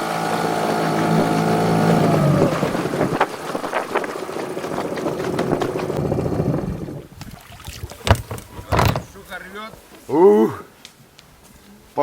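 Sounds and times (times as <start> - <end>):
outboard motor running: 0.0 - 7.1
water noise: 0.0 - 8.8.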